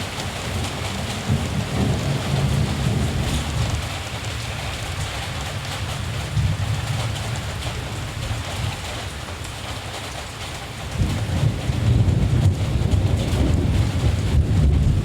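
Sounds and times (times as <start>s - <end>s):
steady rain falling: 0.0s - 15.0s
distant thunder rumbling: 0.4s - 3.8s, 11.0s - 15.0s.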